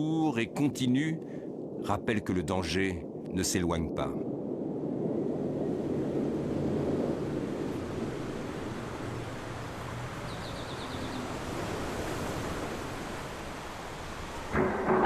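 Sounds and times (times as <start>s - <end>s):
rushing low rumble: 0.0s - 9.8s, 14.5s - 15.0s.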